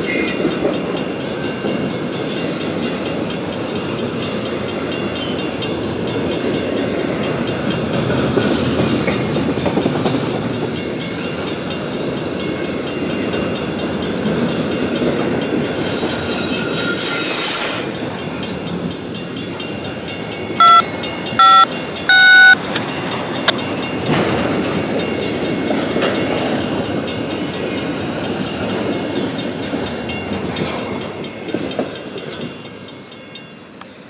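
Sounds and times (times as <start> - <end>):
freight train cars rolling on rails: 0.0 - 22.0, 22.6 - 34.0
loud short beeps: 20.6 - 20.8, 21.4 - 22.7.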